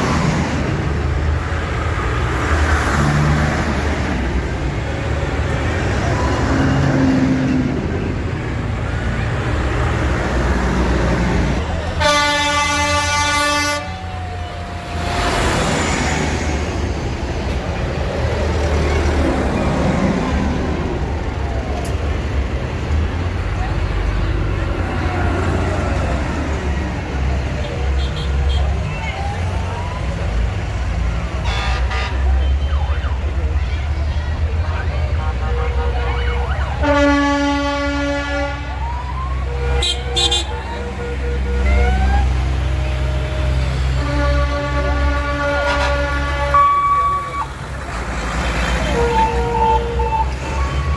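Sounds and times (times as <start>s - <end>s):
tractor engines running: 0.0s - 50.9s
horn blast: 11.6s - 14.3s, 31.3s - 32.5s, 35.2s - 47.5s.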